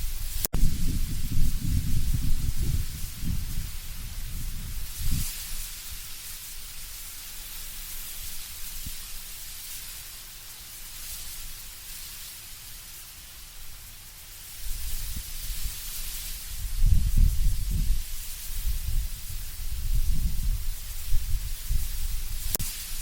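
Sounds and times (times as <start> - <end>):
low rumble of gusting wind: 0.0 - 8.0, 14.6 - 23.0
leaves rustling in wind: 0.0 - 23.0.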